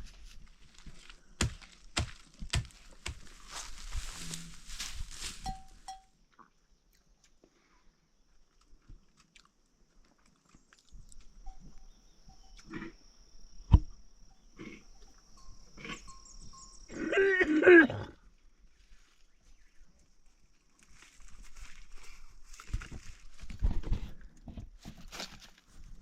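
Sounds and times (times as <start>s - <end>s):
faint steady high tone: 5.4s - 6.2s, 11.3s - 12.7s, 14.3s - 17.6s.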